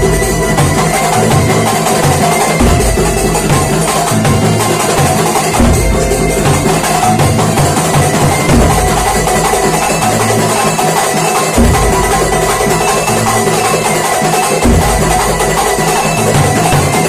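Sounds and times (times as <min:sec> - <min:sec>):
deep drum strokes: 0:00.0 - 0:10.7
hand drums: 0:00.0 - 0:17.0.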